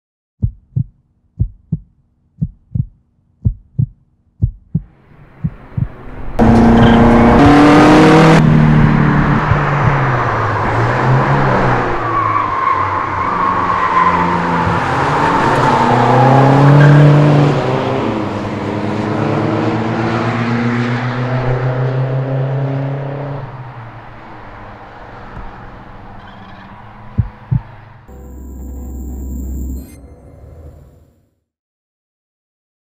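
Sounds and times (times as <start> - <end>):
low thumps: 0.4 - 8.2, 8.8 - 10.2, 27.1 - 29.8
racing car engines revving: 5.3 - 29.8.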